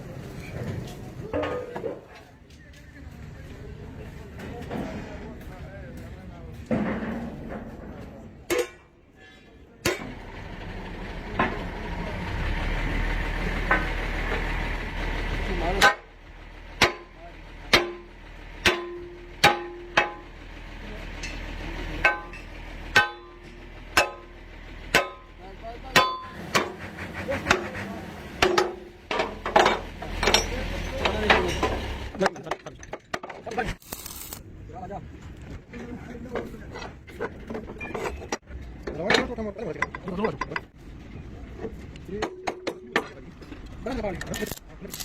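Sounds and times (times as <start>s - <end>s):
vehicle engine rumble: 0.0s - 45.0s
hammer striking metal: 8.5s - 9.0s, 9.8s - 10.2s, 15.8s - 16.1s, 16.8s - 20.4s, 21.2s - 26.8s, 28.4s - 31.9s, 42.2s - 43.1s.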